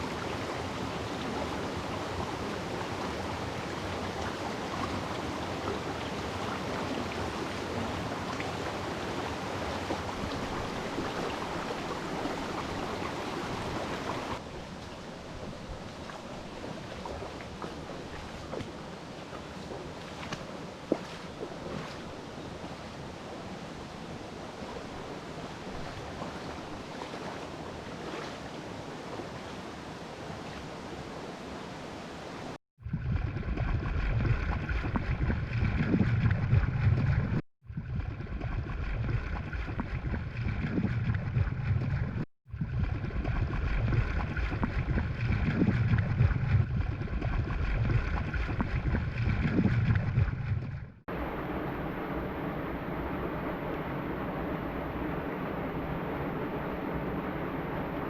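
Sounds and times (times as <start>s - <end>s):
mountain stream flowing: 0.0s - 32.6s, 51.1s - 58.0s.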